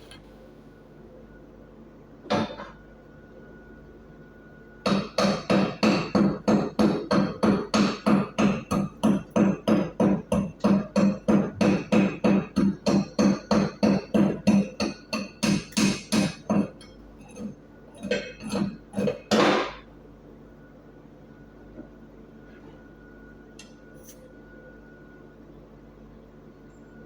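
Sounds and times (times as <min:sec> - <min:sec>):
chipping hammer striking steel: 0:04.9 - 0:16.8.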